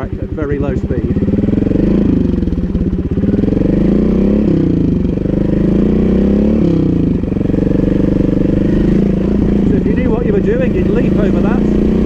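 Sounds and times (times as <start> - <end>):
motorcycle engine pulling away: 0.0 - 12.0.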